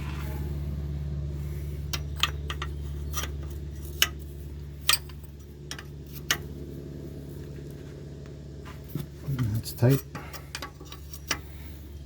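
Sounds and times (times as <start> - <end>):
low hum: 0.0 - 12.0
wrench clinking on metal: 9.9 - 11.6.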